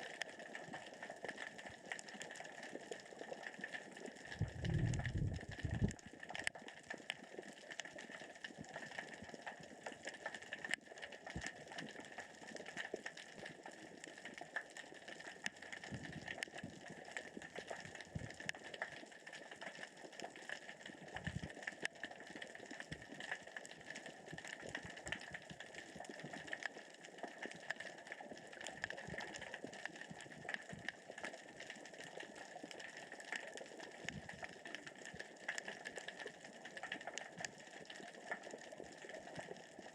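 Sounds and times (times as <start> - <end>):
underwater rocks crackling: 0.0 - 39.9.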